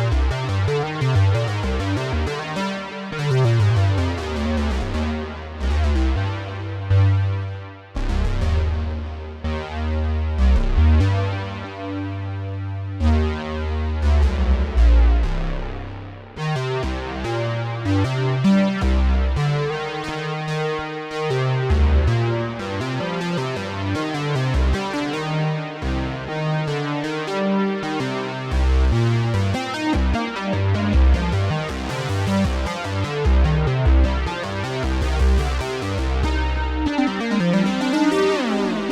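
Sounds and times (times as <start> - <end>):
synth bass line: 30.0 - 38.9.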